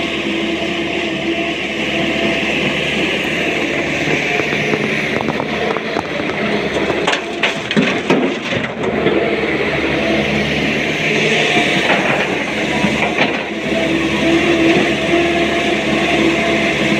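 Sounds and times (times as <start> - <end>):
excavator diesel engine running: 0.0 - 16.9
rocks knocking and scraping: 3.8 - 9.2.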